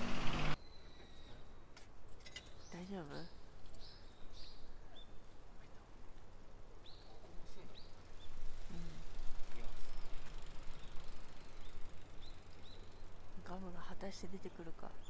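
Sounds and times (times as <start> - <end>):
small bird chirps: 9.8 - 13.1.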